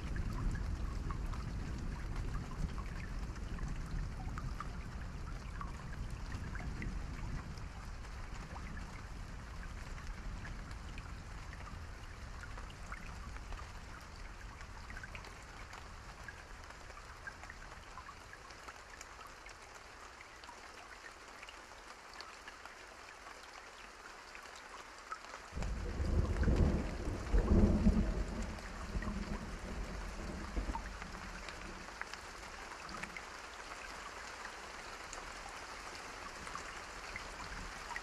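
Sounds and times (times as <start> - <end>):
steady rainfall: 0.0 - 38.0
thunder: 25.6 - 31.9.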